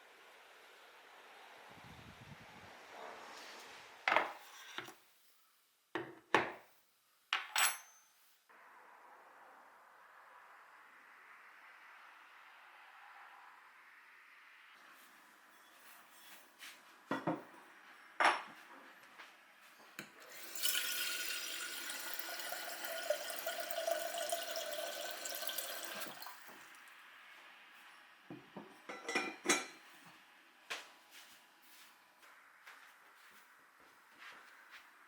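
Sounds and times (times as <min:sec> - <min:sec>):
dishes clinking: 0:18.2 - 0:18.6, 0:28.6 - 0:29.8
kitchen tap running into sink: 0:20.2 - 0:26.8.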